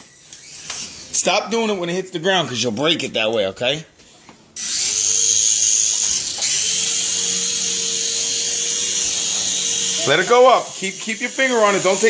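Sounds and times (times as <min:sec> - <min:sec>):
toy helicopter motor whirring: 0:00.0 - 0:01.3, 0:04.6 - 0:12.0.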